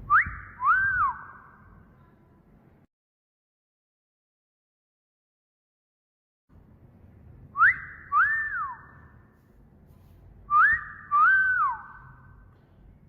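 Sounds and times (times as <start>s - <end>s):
wolf whistle: 0.0s - 1.7s, 7.6s - 9.1s, 10.5s - 12.4s.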